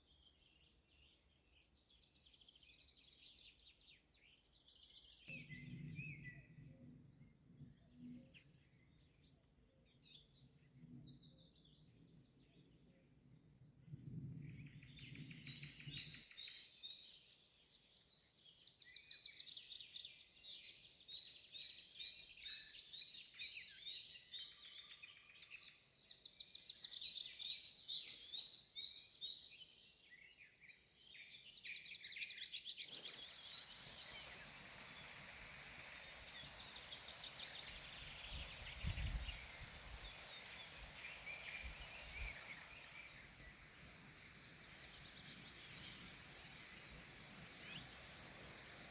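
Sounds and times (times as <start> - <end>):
songbirds chirping and trilling: 0.0 - 48.9
steady hiss: 25.9 - 29.5, 31.0 - 48.9.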